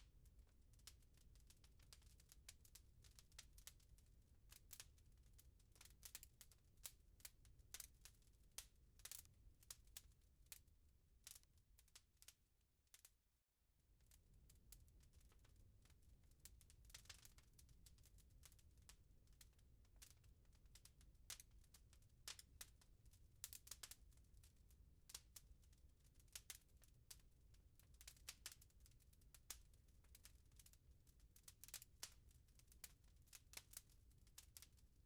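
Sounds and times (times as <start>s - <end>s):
wood fire crackling and popping: 0.2s - 3.9s, 4.5s - 10.6s, 14.7s - 22.8s, 23.4s - 24.5s, 25.1s - 30.7s, 31.4s - 34.8s.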